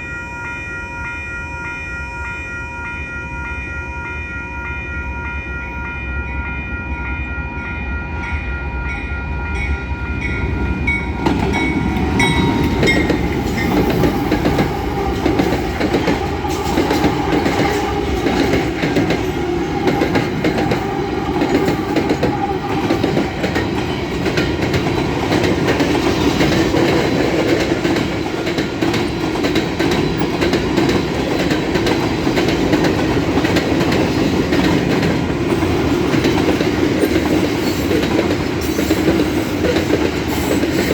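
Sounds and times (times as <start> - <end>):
level crossing bells ringing: 0.0 - 14.4
diesel locomotives: 0.0 - 40.9
freight cars clattering on rails: 11.1 - 40.9.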